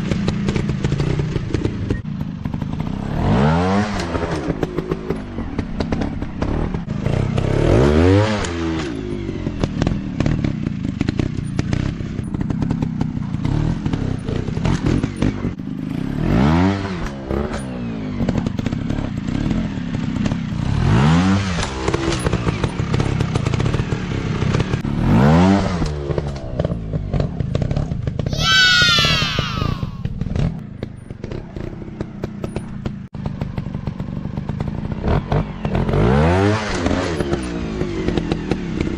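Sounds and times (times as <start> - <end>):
dirt bike engines revving: 28.3 - 30.2.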